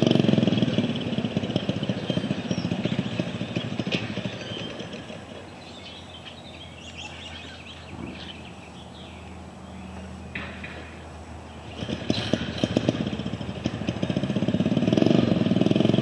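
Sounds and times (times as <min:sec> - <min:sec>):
engine deep thump: 0:07.7 - 0:08.6, 0:09.8 - 0:16.0.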